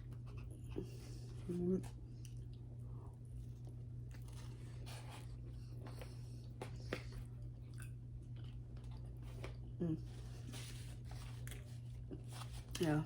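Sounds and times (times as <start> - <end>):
person chewing food: 0.0 - 10.4
steady low hum: 0.0 - 13.0.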